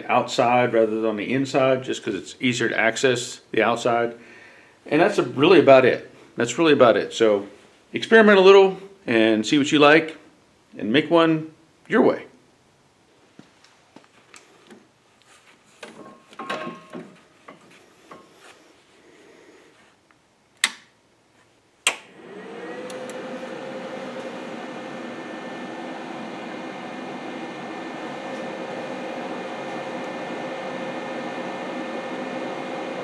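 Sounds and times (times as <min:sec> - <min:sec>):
handling clicks and knocks: 0:15.8 - 0:18.3
sharp clicks: 0:20.6 - 0:20.9, 0:21.9 - 0:22.1
electric motor humming: 0:22.0 - 0:33.0.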